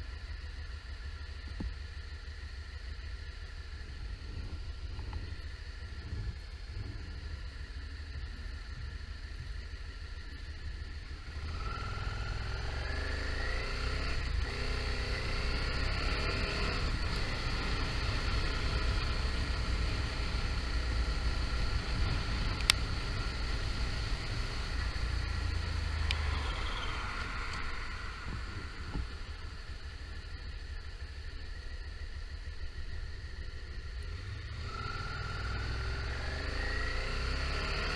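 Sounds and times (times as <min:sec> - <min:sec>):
motorcycle engine revving: 0:11.1 - 0:31.7, 0:32.4 - 0:37.9.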